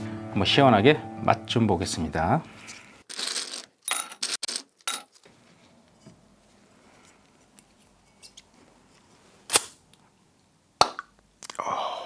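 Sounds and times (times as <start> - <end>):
sharp bottle opening noise: 9.5 - 9.8.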